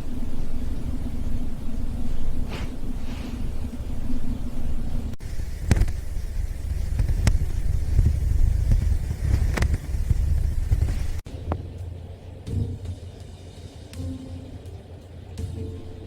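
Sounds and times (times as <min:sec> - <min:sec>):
robot vacuum rumbling: 0:00.0 - 0:11.2.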